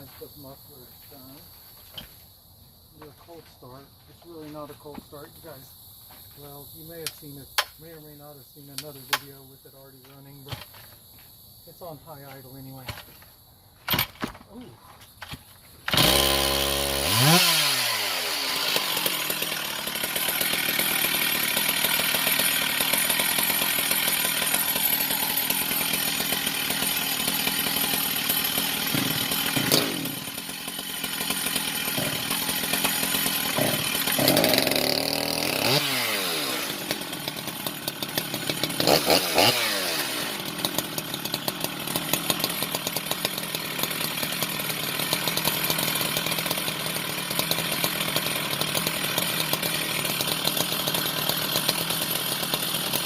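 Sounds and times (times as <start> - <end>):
chainsaw revving: 15.9 - 53.0.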